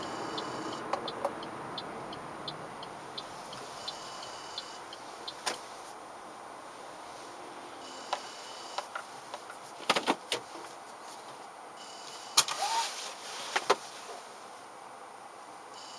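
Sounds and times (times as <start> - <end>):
car cabin hiss: 11.8 - 14.4.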